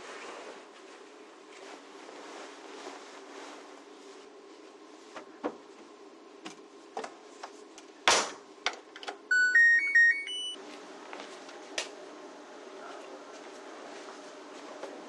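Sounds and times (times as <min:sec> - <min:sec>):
appliance electronic beep melody: 0:09.3 - 0:10.6.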